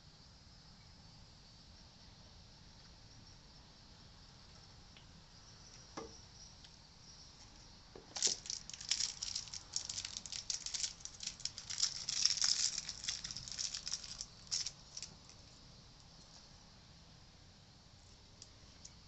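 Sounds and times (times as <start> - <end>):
small hard parts clicking and rattling: 8.0 - 15.5.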